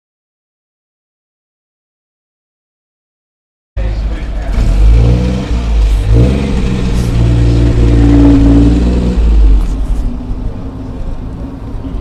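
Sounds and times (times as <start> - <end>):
racing car engine accelerating: 3.8 - 10.2.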